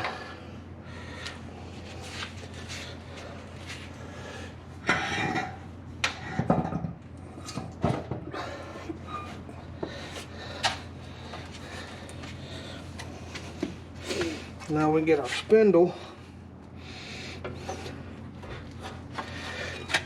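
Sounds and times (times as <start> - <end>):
steady low hum: 0.0 - 20.0
metal tools clanking and scraping: 8.8 - 9.4.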